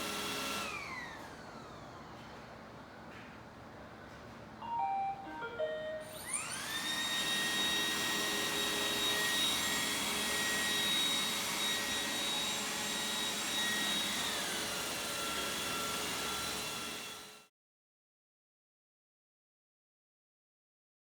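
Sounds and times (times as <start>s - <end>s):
robot vacuum motor whine: 6.1s - 14.5s.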